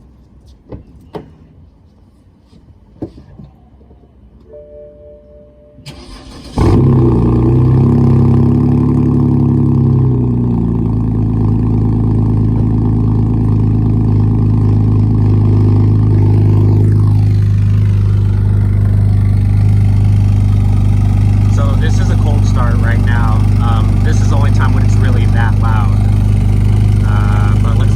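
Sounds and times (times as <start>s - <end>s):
car engine starting and idling: 5.8s - 27.9s.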